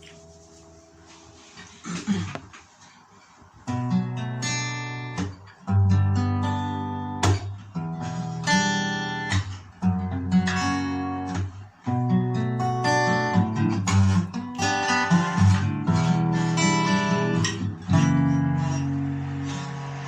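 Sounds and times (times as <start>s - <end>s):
guitar strumming chords: 3.7s - 20.0s.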